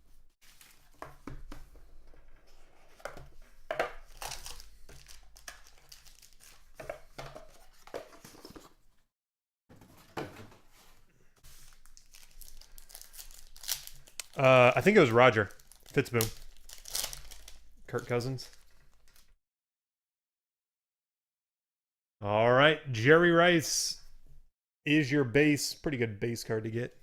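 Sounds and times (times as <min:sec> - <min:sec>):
packaging being torn and crinkled: 0:04.0 - 0:06.7, 0:11.7 - 0:19.3.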